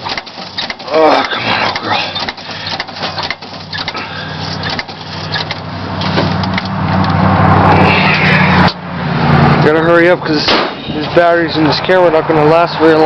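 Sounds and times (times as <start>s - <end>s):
engine starter cranking: 0.0s - 6.8s.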